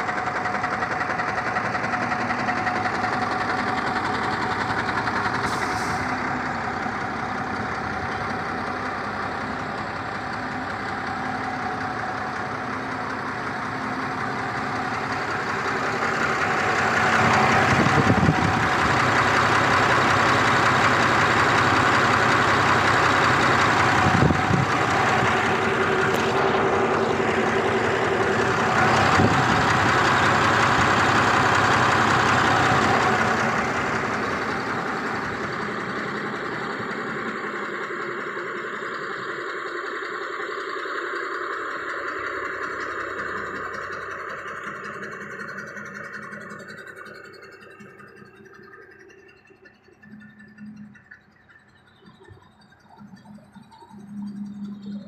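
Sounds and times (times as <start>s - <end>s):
truck diesel engine running: 0.0s - 55.0s.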